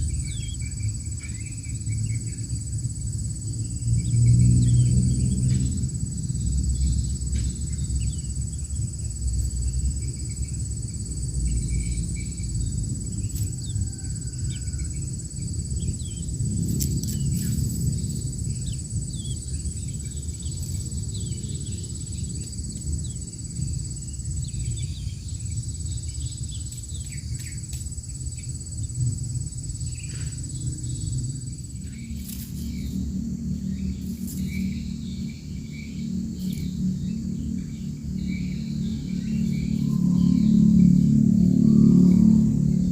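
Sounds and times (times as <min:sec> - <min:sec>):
bird chirps: 0:00.0 - 0:02.6, 0:06.4 - 0:23.3, 0:29.9 - 0:42.9
insect drone: 0:00.0 - 0:42.9
low rumble: 0:00.0 - 0:42.9.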